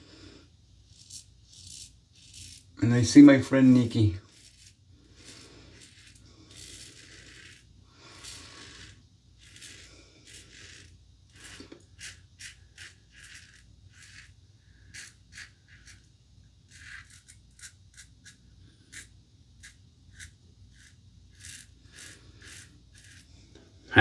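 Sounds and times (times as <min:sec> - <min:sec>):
razor scraping stubble: 0:00.9 - 0:14.3, 0:14.9 - 0:16.1, 0:16.7 - 0:23.3.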